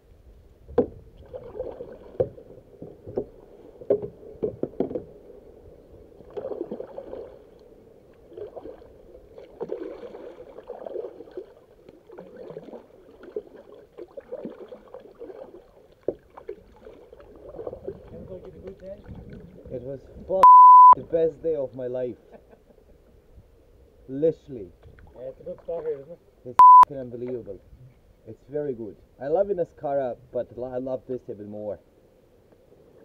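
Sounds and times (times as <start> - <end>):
paddle strokes swishing through water: 0.8 - 20.4.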